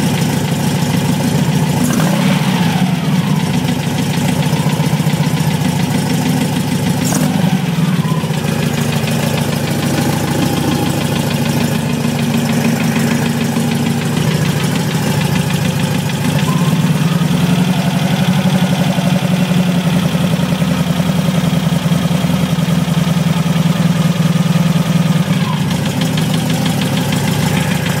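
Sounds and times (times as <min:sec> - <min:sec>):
car engine idling with knocking: 0:00.0 - 0:28.0.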